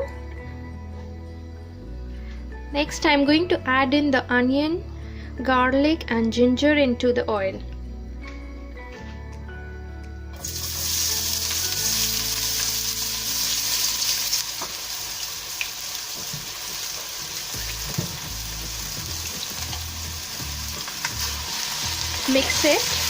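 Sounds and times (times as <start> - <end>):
food sizzling in hot oil: 10.4 - 23.0.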